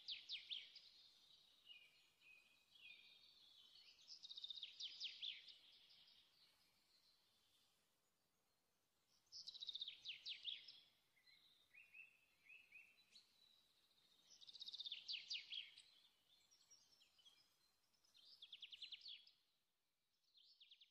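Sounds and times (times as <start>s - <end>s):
songbird singing: 0.0s - 20.9s.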